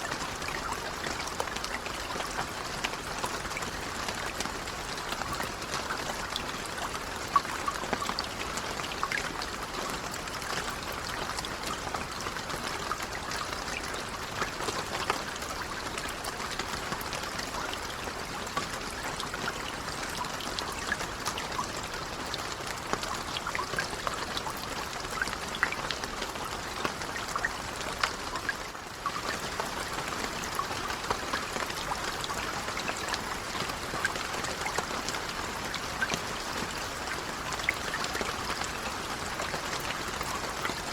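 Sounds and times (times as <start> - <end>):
gentle rain pattering: 0.0 - 40.9
water trickling: 0.0 - 40.9.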